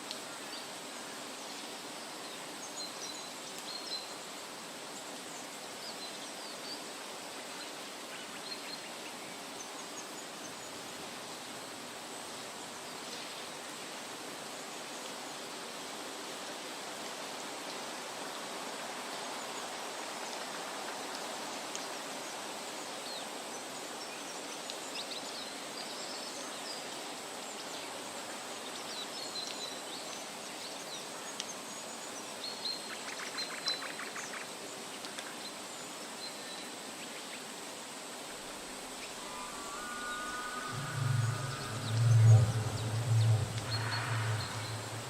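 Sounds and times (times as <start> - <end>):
rushing hiss of water or wind: 0.0 - 45.0
bird chirps: 39.0 - 45.0.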